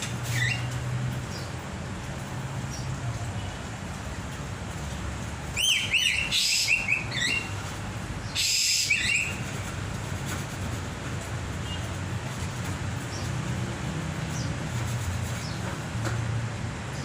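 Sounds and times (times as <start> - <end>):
songbird whistling: 5.6 - 7.6, 8.3 - 9.4.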